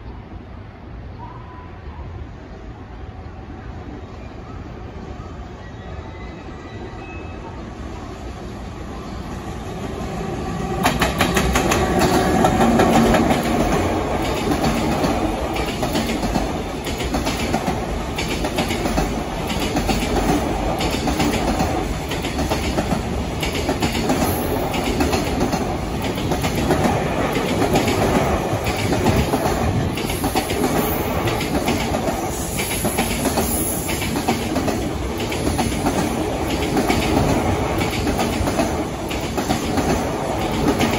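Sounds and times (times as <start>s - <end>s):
freight train wheels clacking: 10.5s - 40.9s.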